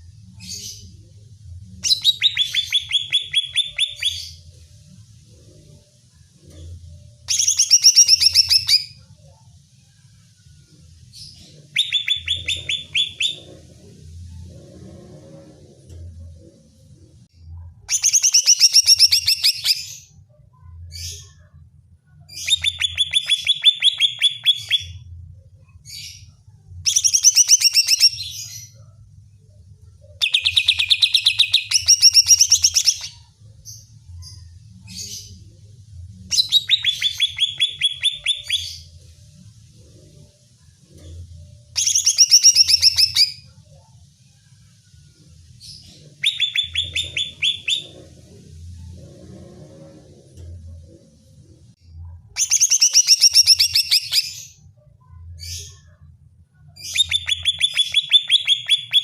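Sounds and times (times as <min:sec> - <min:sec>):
bird singing rapid chattering notes: 0:01.8 - 0:04.4, 0:07.3 - 0:09.0, 0:11.6 - 0:13.6, 0:30.2 - 0:33.2, 0:36.3 - 0:38.9, 0:41.8 - 0:43.4, 0:45.7 - 0:48.1, 0:56.8 - 0:59.0.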